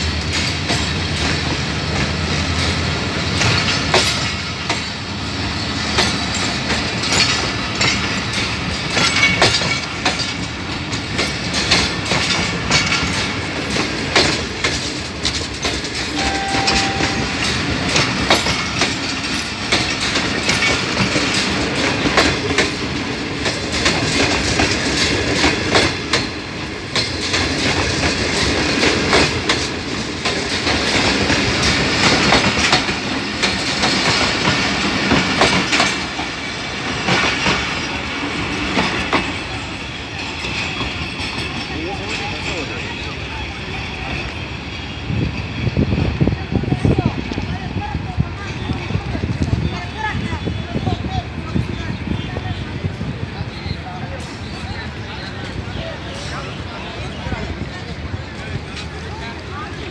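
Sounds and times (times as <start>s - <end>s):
train wheels clattering over rail joints: 0.0s - 16.2s, 17.4s - 44.5s.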